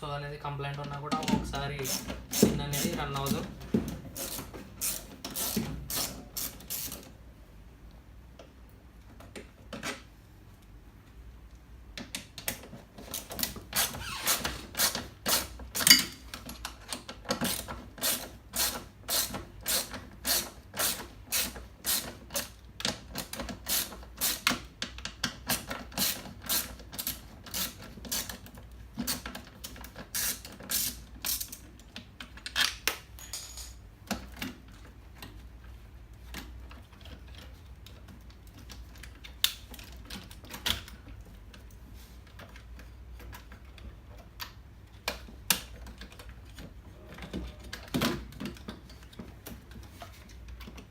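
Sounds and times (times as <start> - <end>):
hand ratchet clicking: 1.8 - 3.5, 4.2 - 7.0, 13.1 - 16.1, 17.3 - 22.5.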